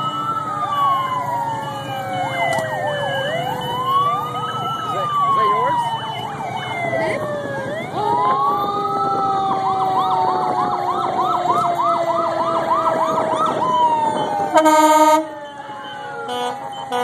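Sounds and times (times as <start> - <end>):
police sirens wailing: 0.0 - 17.0
siren yelp: 0.0 - 17.0
loud horn blast: 14.5 - 15.3.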